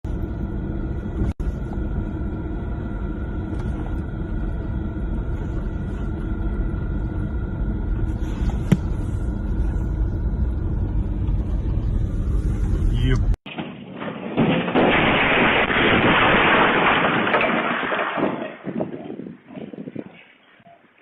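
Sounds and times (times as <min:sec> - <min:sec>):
car driving rumble: 0:00.1 - 0:13.4.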